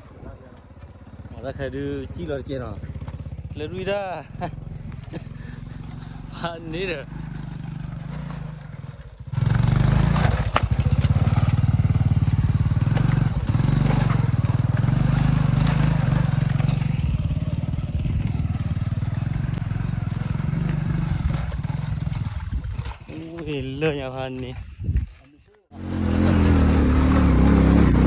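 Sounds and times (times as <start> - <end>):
motorbike engine running hard: 0.0 - 28.0.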